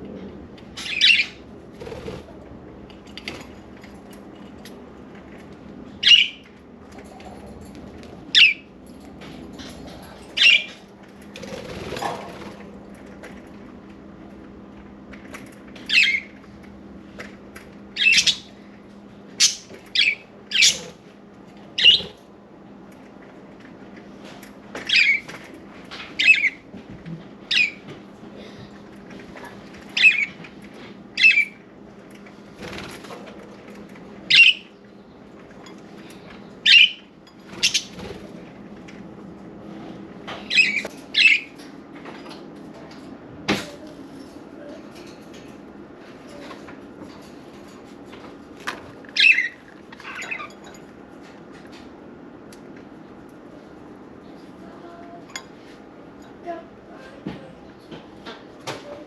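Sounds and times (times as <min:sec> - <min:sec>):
budgerigars chirping and squawking: 0:00.8 - 0:01.4, 0:06.0 - 0:06.4, 0:08.3 - 0:08.6, 0:10.4 - 0:10.8, 0:15.9 - 0:16.3, 0:18.0 - 0:18.5, 0:19.4 - 0:21.0, 0:21.8 - 0:22.2, 0:27.5 - 0:27.8, 0:30.0 - 0:30.4, 0:31.2 - 0:31.6, 0:34.3 - 0:34.7, 0:36.6 - 0:38.0, 0:40.5 - 0:41.5, 0:49.1 - 0:50.6.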